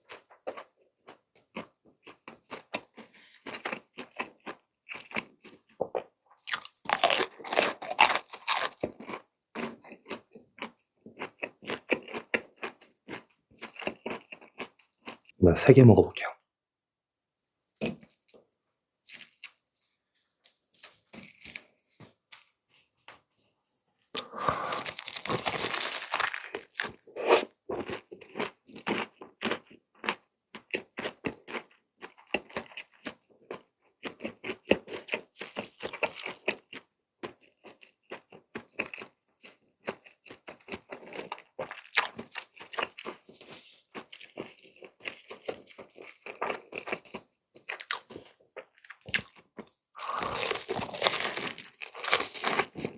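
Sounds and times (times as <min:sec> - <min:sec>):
crunching cheese snacks: 0:00.1 - 0:05.8, 0:06.4 - 0:15.3, 0:19.0 - 0:19.6, 0:20.4 - 0:23.3, 0:24.2 - 0:52.9
chewing: 0:24.1 - 0:52.9.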